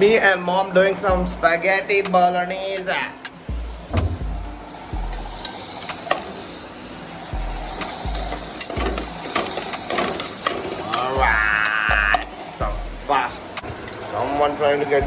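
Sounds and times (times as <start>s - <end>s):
food sizzling in a pan: 1.7s - 14.9s
utensil clicking against pan: 7.4s - 14.1s.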